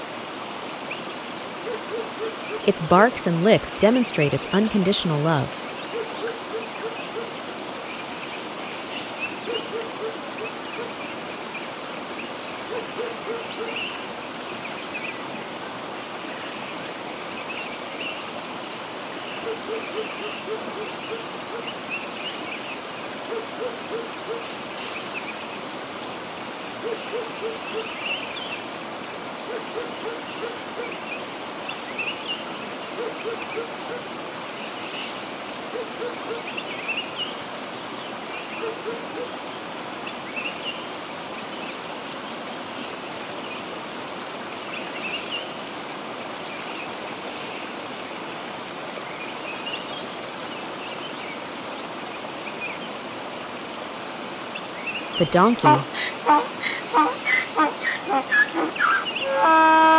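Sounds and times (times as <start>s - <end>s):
low hooting bird calls: 55.8s - 59.9s.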